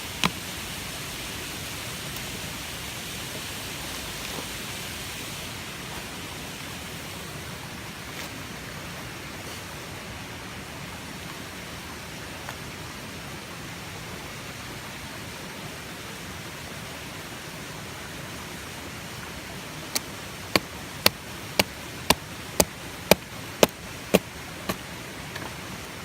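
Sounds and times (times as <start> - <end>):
steady rushing hiss: 0.0 - 26.0.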